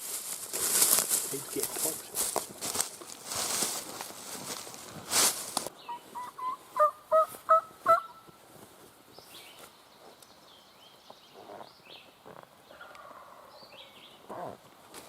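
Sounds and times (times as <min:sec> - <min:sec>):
turkey yelping: 0:05.8 - 0:08.3, 0:12.7 - 0:13.5.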